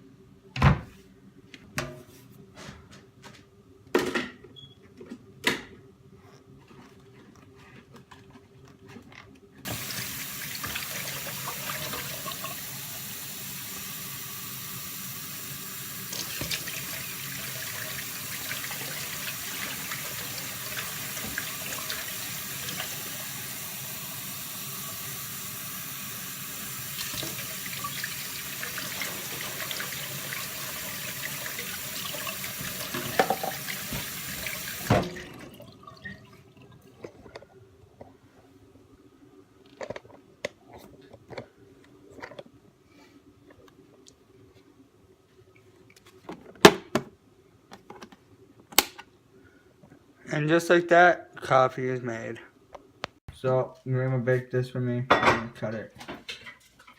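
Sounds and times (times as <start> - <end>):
water running from a tap: 9.7 - 36.1.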